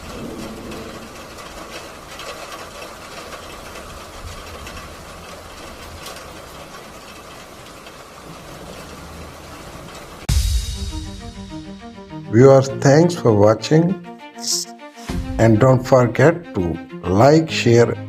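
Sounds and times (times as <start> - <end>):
heavy rain and hail: 0.0 - 10.5.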